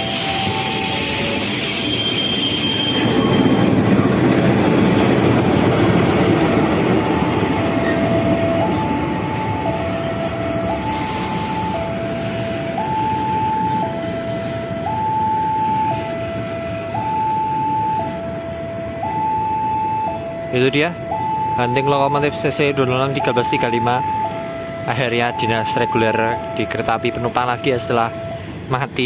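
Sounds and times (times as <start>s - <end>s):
train rumbling past: 0.0s - 21.5s, 24.0s - 29.0s
level crossing warning signal: 0.0s - 29.0s.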